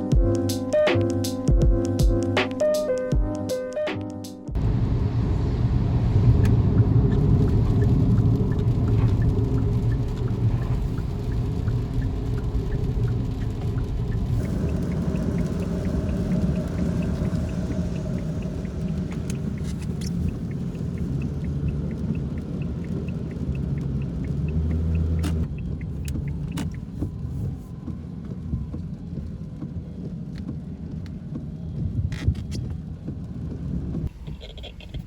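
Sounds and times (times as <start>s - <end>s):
car road and engine rumble: 4.6s - 35.0s
faint rapid ticking: 6.8s - 27.0s
sharp clicks: 13.0s - 26.9s.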